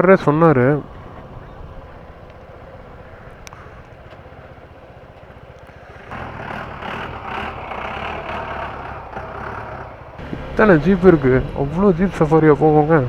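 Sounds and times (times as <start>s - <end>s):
motorcycle engine running: 0.0s - 13.0s
loud rushing noise: 10.1s - 13.0s.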